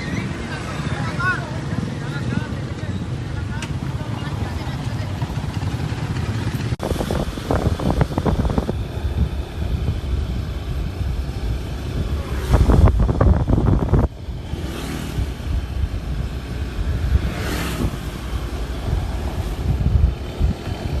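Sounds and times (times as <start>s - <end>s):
wind buffeting microphone: 5.1s - 21.0s.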